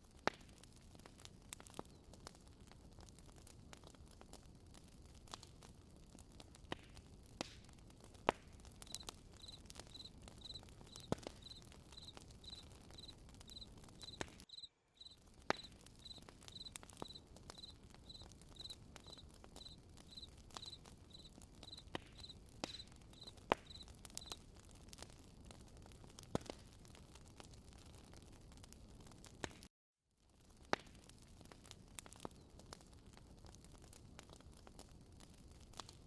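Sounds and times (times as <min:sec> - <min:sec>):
campfire crackling and popping: 0:00.0 - 0:36.0
cricket chirping: 0:08.9 - 0:22.3, 0:23.2 - 0:24.3.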